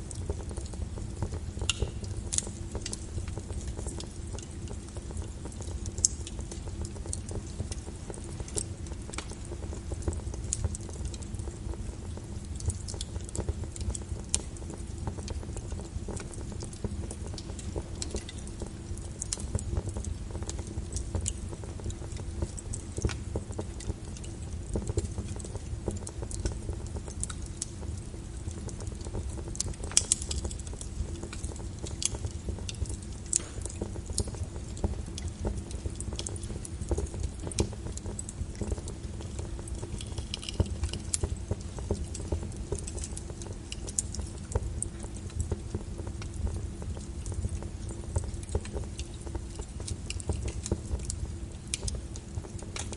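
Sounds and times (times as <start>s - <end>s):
fire pops and snaps: 0.0s - 52.9s
wood fire crackling: 0.0s - 52.9s.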